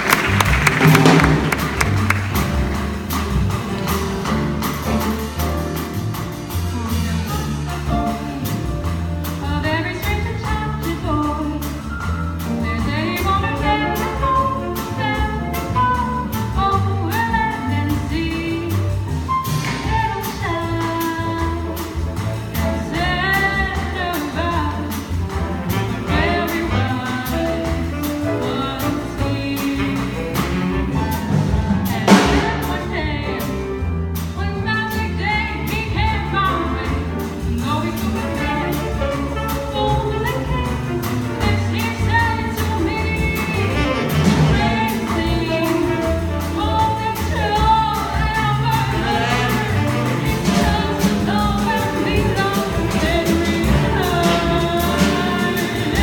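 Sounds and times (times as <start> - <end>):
sharp drum hit: 0.0 - 6.8, 30.4 - 33.0
bass: 0.0 - 56.0
drum kit cymbals: 0.0 - 56.0
piano: 0.0 - 56.0
woman singing: 6.9 - 19.1, 19.8 - 25.2, 25.8 - 30.6, 31.7 - 56.0.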